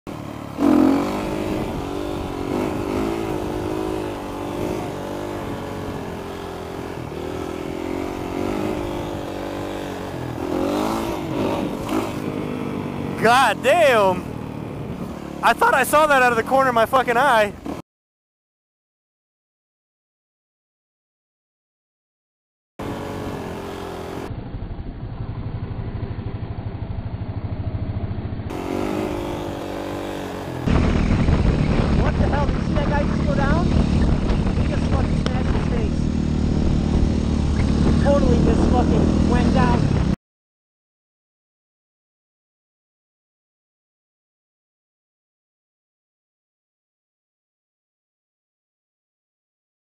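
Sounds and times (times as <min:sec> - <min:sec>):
motorcycle engine revving: 0:00.1 - 0:17.8, 0:22.8 - 0:40.2.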